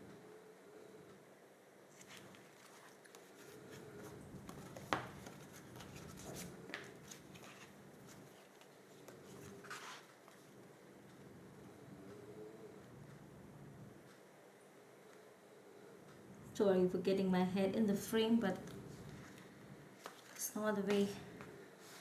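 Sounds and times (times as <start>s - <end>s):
paper rubbing and rustling: 1.9s - 10.5s.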